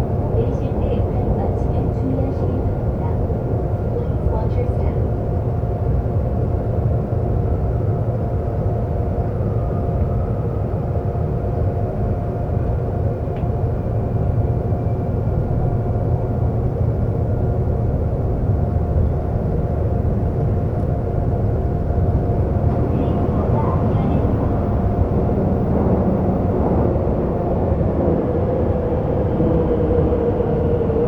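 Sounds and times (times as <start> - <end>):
subway train rumbling: 0.0 - 31.0
steady hum: 15.1 - 31.0.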